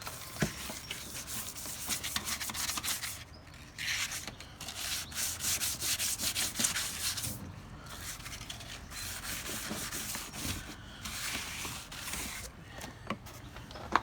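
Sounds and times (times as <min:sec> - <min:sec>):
sandpaper scraping a bumper: 0:00.0 - 0:12.5.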